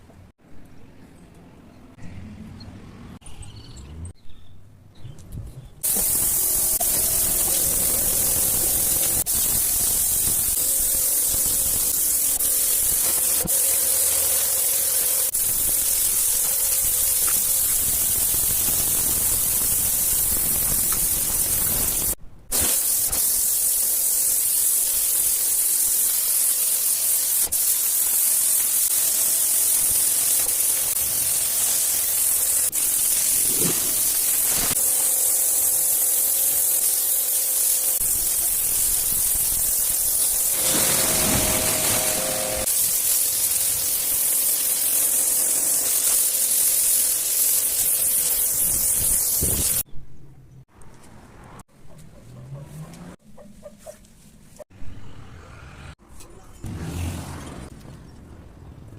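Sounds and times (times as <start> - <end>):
pressure washer water jet hissing: 5.8 - 49.8.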